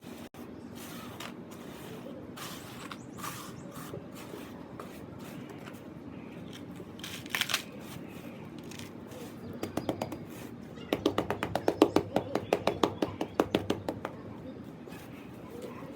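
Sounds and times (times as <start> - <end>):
sand cement scraping and crunching: 0.0 - 15.6
quick taps: 9.6 - 10.3, 10.9 - 14.2.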